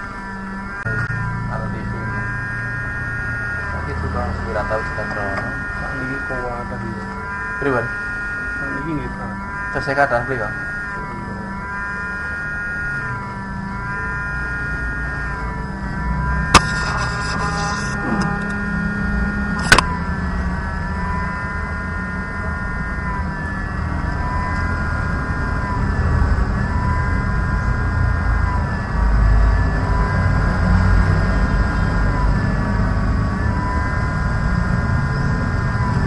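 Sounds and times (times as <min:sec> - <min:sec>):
steady wavering hum: 0:00.0 - 0:36.0
sharp clicks: 0:19.6 - 0:19.9.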